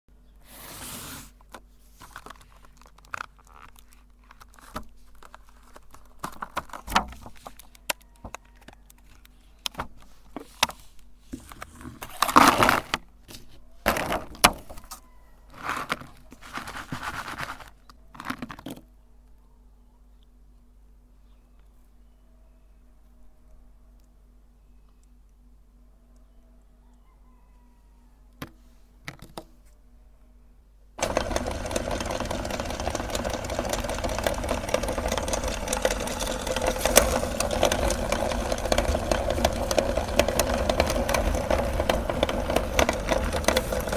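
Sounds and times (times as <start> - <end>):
crinkling and rustling: 0.6 - 19.4, 31.0 - 43.9
sharp clicks and rattles: 31.0 - 43.9.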